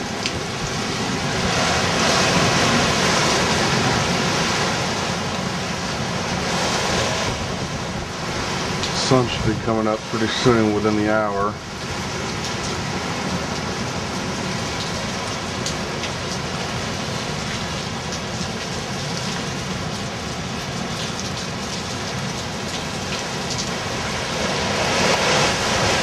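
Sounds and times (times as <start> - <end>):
wind gusts: 0.0 - 20.6, 21.5 - 26.0
heavy rain hissing: 0.0 - 26.0
raindrop ticks: 14.8 - 16.4, 17.5 - 23.8.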